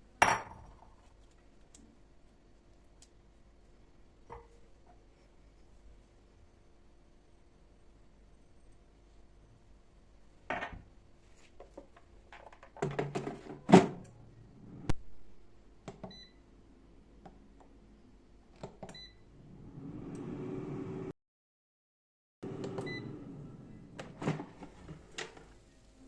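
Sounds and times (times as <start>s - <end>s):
air fryer fan hum: 19.0s - 21.1s, 22.4s - 25.4s.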